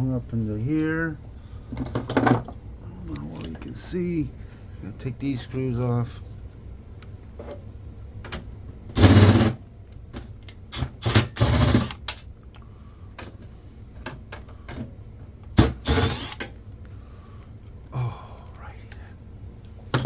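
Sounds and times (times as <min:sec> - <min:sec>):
power driver whirring: 0:08.9 - 0:09.6, 0:10.5 - 0:12.2, 0:15.5 - 0:16.6.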